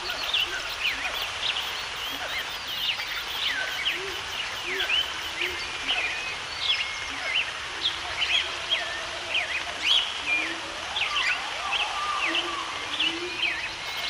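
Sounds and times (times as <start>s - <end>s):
birds chirping and singing: 0.0s - 14.0s
low bird calls: 0.0s - 14.0s
steady background hiss: 0.0s - 14.0s.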